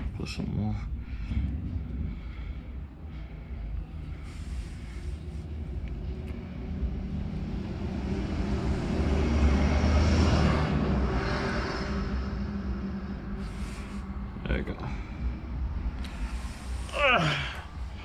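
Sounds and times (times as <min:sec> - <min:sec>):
passing vehicle rumble: 0:00.0 - 0:16.9.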